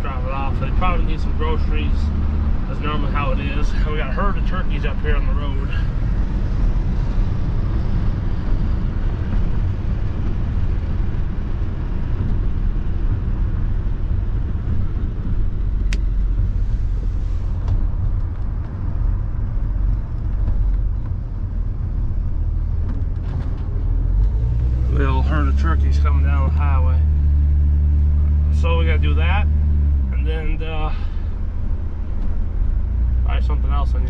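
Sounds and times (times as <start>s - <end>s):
road and engine rumble in car: 0.0s - 34.0s.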